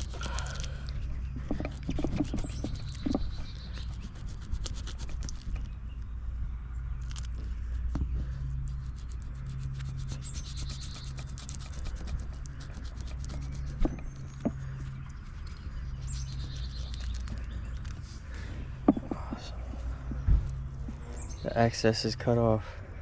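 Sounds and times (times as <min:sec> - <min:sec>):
steady low hum: 0:00.0 - 0:23.0
rubber rubbing and scraping: 0:01.3 - 0:05.8, 0:07.1 - 0:18.2.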